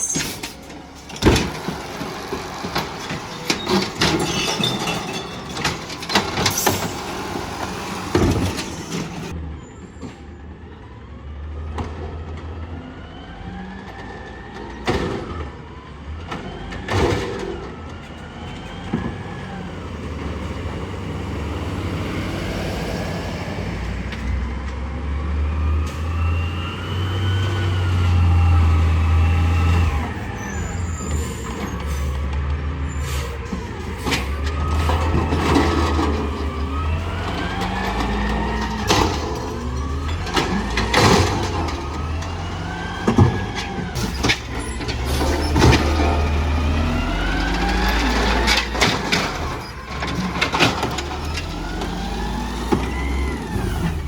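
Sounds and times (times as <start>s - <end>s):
metal bangs and clatter: 0.0s - 9.3s, 33.4s - 54.0s
garbage truck engine revving: 0.0s - 9.5s, 11.2s - 54.0s.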